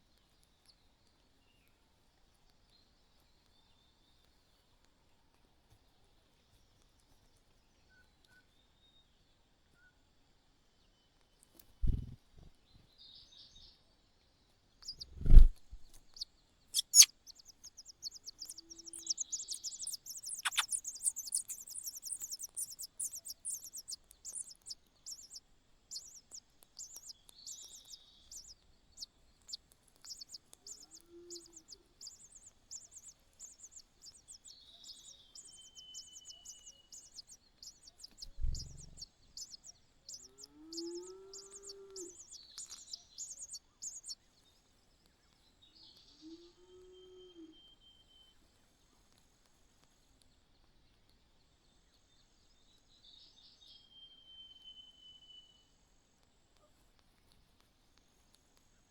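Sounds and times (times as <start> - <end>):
nestling bird begging chirps: 16.8 - 28.5, 30.0 - 44.2.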